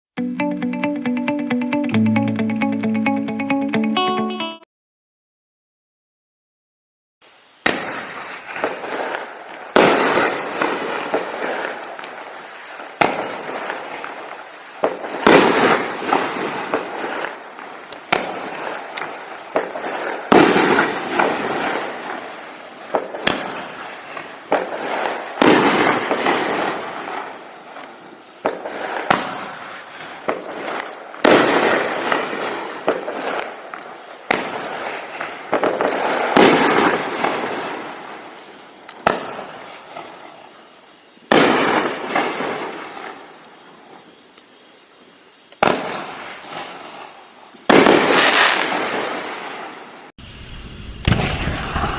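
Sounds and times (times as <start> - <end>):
firework shots: 7.6 - 40.4, 41.2 - 43.4, 45.6 - 51.9
firework shells crackling: 51.0 - 51.9.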